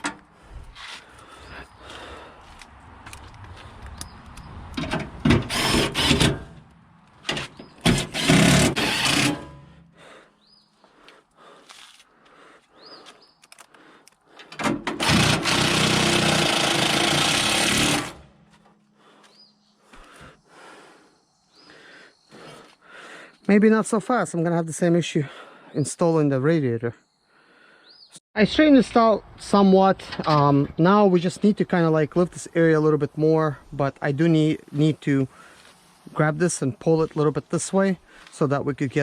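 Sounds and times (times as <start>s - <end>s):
power tool driving fasteners: 4.8s - 6.6s, 7.2s - 9.7s, 14.4s - 18.4s
clicks and knocks of parts: 13.4s - 15.5s.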